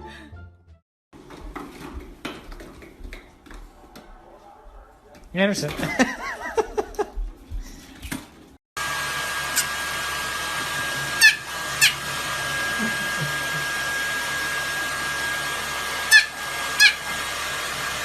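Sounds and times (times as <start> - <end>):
hair dryer running: 8.8 - 18.0.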